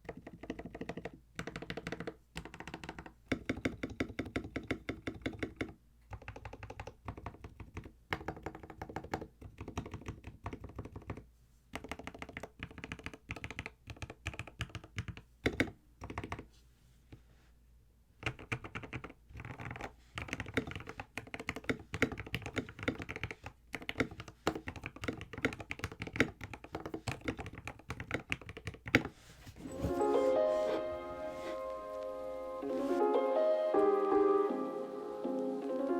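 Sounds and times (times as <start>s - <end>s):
mechanical keyboard typing: 0.0s - 16.5s, 18.2s - 29.1s
music: 29.6s - 35.9s.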